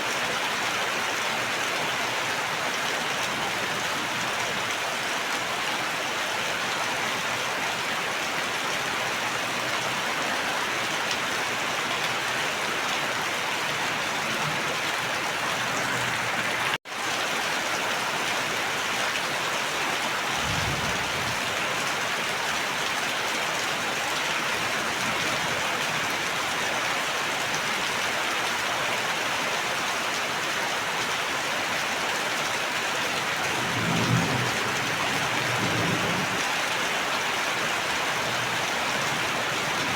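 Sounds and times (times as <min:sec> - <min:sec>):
heavy rain: 0:00.0 - 0:39.9
low rumble: 0:20.4 - 0:21.5.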